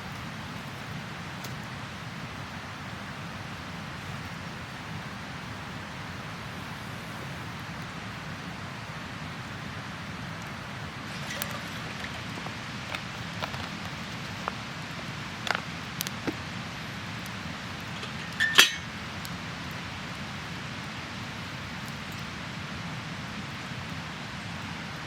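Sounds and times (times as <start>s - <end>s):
steady rushing noise: 0.0s - 25.0s
ringing clink: 18.2s - 18.9s.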